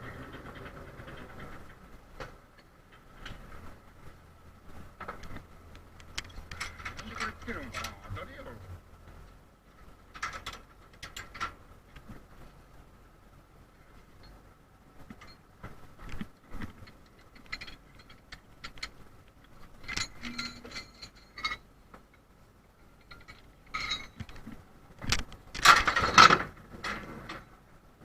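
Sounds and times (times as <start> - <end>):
metallic clanking and rattling: 0.0 - 3.8, 4.9 - 8.5, 10.0 - 12.2, 14.2 - 22.2, 22.9 - 24.5, 25.1 - 27.5
faint steady whine: 0.0 - 28.0.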